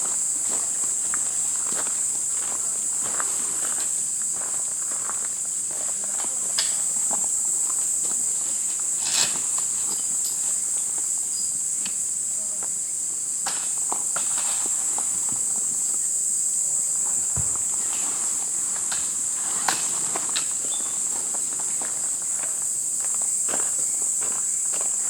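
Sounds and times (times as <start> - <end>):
insects chirping: 0.0 - 25.0
dull thump: 17.3 - 17.7.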